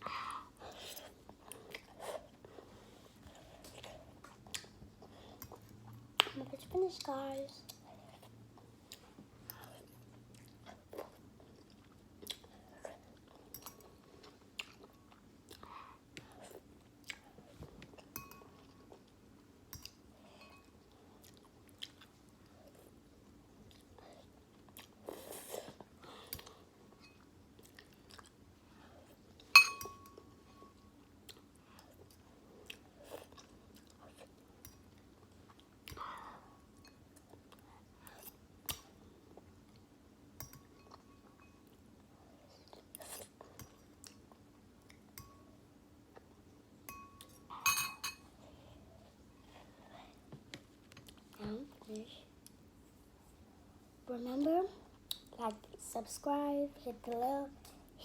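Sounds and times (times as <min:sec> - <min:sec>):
person chewing and eating noodles: 0:07.7 - 0:30.2
sharp ringing clink: 0:29.6 - 0:30.1.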